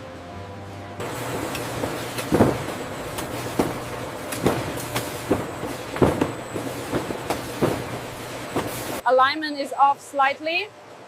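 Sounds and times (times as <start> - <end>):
machine clanks and knocks: 1.0 - 9.0
sorting machine humming: 1.0 - 9.0.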